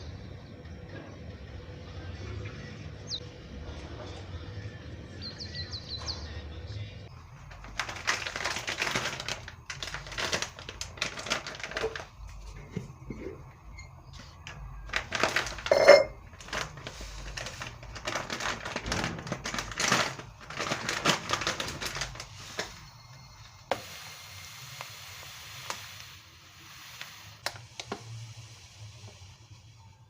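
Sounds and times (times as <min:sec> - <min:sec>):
objects rustling and clicking: 0:07.4 - 0:13.5, 0:14.2 - 0:23.5
steady hiss: 0:22.2 - 0:30.0.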